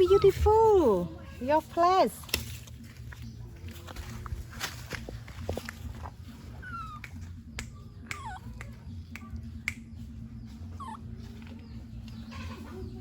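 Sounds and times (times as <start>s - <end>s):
baby monkey squeaking: 6.6s - 9.2s, 10.6s - 11.3s.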